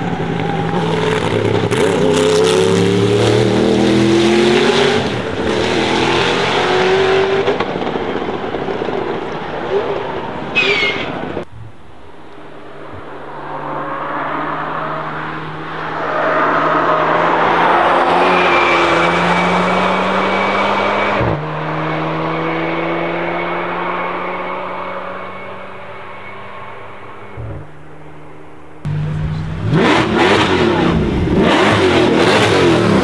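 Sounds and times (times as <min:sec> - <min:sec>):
car engine passing by: 0:12.4 - 0:27.7.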